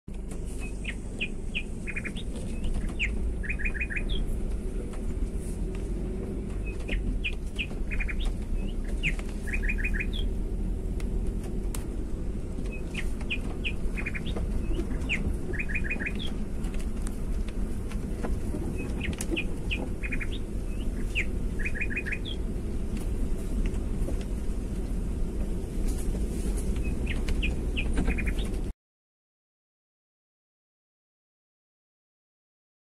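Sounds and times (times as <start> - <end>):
steady low rumble: 0.1 - 28.7
songbird chirping phrase: 0.6 - 4.4, 6.6 - 10.4, 12.7 - 16.4, 18.7 - 22.4, 26.8 - 28.6.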